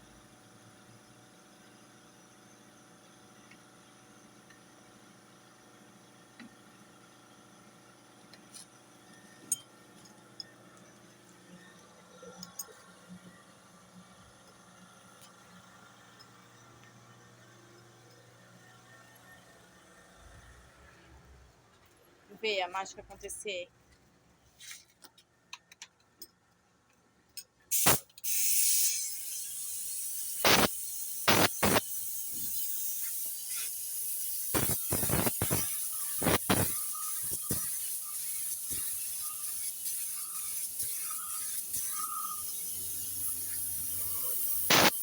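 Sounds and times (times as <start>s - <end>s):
paint spray gun hissing: 27.7s - 45.0s
air blast: 27.8s - 29.0s, 44.7s - 45.0s.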